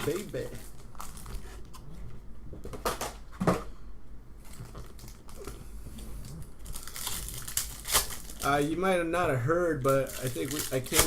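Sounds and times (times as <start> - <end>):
packaging crinkling and rustling: 0.0 - 1.9, 4.4 - 5.6, 6.2 - 8.7, 9.8 - 11.0.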